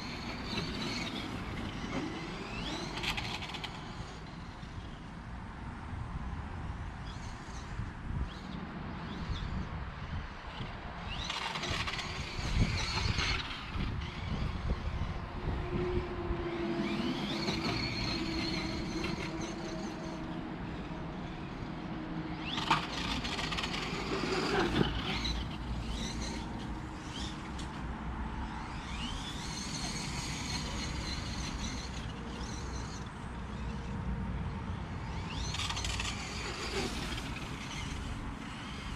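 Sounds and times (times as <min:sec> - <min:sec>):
electric motor whining: 0:11.1 - 0:34.0, 0:34.7 - 0:38.9.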